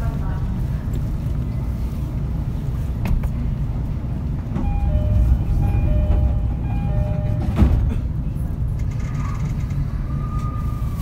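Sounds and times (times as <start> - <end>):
train interior rumble: 0.0 - 11.0
electronic chime melody: 4.7 - 7.5.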